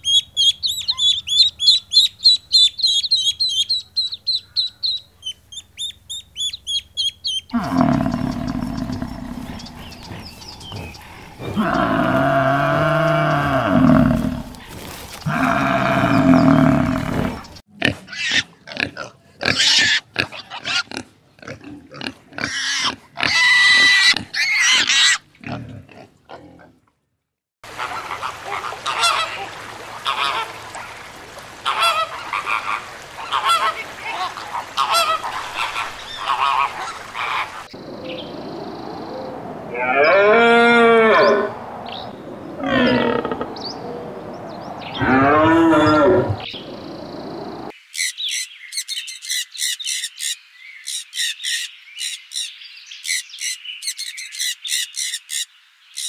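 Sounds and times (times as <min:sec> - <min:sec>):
water buffalo lowing: 0:07.5 - 0:17.6, 0:37.8 - 0:47.7
piglets squealing: 0:18.1 - 0:21.0, 0:22.0 - 0:25.2
flamingos honking: 0:27.7 - 0:38.3, 0:39.3 - 0:46.6.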